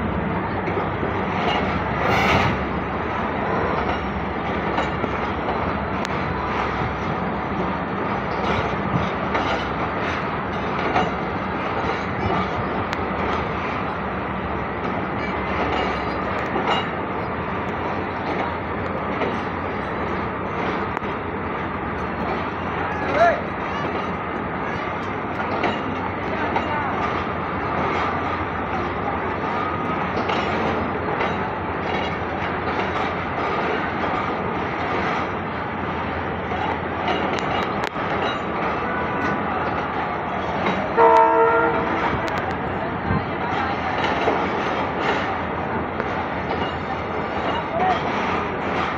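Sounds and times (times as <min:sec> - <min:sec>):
train wheels rumbling on rail: 0:00.0 - 0:48.9
train horn blast: 0:40.9 - 0:42.0.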